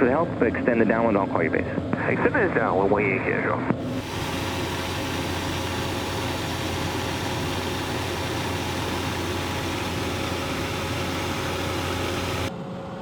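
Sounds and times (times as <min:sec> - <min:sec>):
turboprop plane droning in flight: 0:03.8 - 0:12.5.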